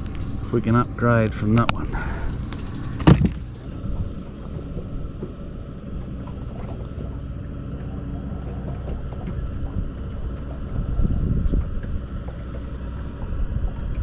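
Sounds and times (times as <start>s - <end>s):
boat motor running: 0.0s - 14.0s.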